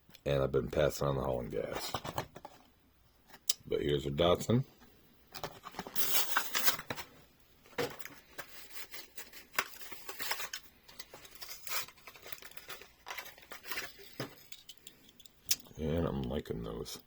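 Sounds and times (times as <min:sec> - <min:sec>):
plastic packaging crinkling: 0:05.4 - 0:14.8.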